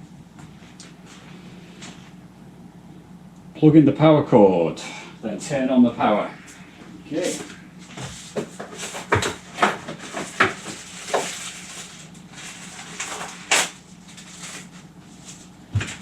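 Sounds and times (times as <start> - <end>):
objects knocking and rustling: 7.4 - 13.4, 15.3 - 16.0.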